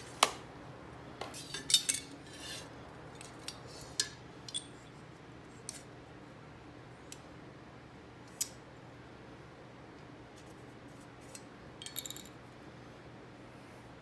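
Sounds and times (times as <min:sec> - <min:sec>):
metal tools clinking on workbench: 0:01.2 - 0:02.6, 0:11.8 - 0:12.3.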